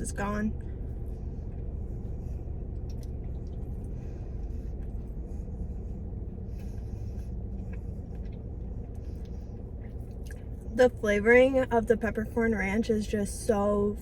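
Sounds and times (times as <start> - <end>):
car cabin hum: 0.0 - 14.0
person chewing food: 0.7 - 10.7.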